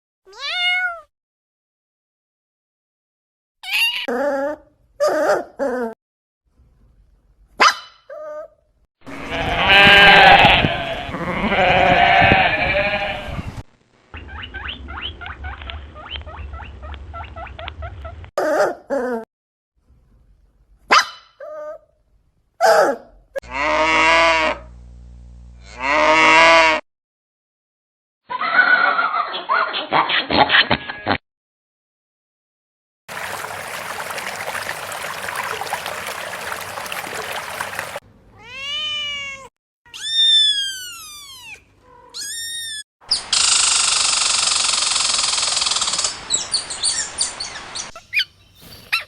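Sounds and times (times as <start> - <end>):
domestic animals calling: 33.1 - 38.0.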